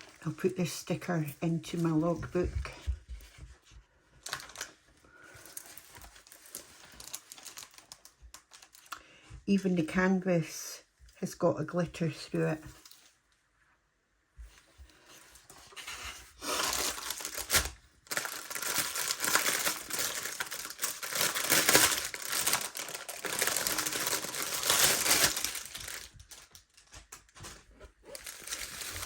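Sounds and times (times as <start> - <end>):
plastic packaging crinkling: 4.2 - 9.0, 15.2 - 29.0.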